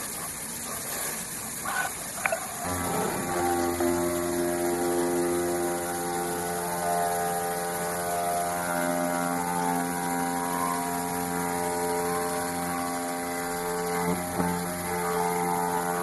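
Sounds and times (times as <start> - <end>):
plotter motor whine: 0.0 - 16.0.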